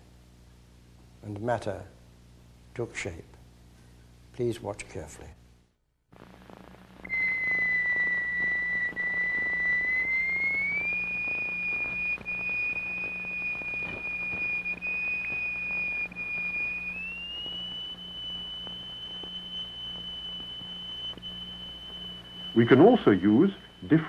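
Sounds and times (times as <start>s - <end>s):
faint low hum: 0.0s - 24.0s
whistle-like test tone: 7.0s - 24.0s.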